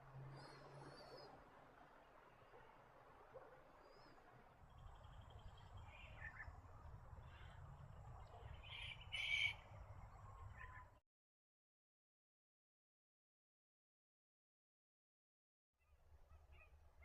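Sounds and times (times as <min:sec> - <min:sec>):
faint bird calls: 0:08.6 - 0:09.7.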